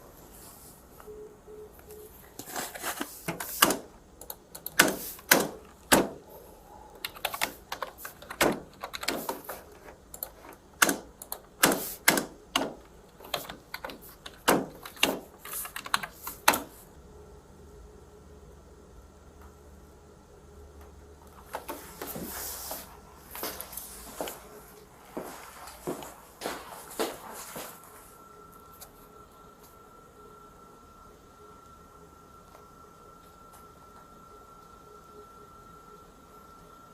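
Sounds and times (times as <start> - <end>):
typing on computer keyboard: 3.4 - 6.1, 7.0 - 16.7.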